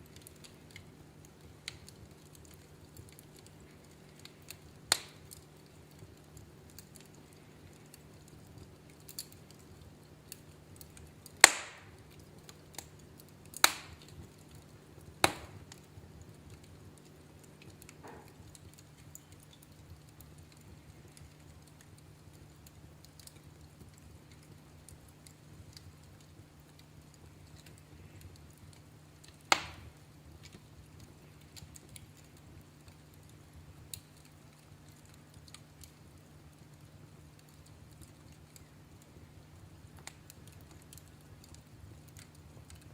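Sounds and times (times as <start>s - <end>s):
low steady hum: 0.0s - 42.9s
wood fire crackling: 0.0s - 42.9s.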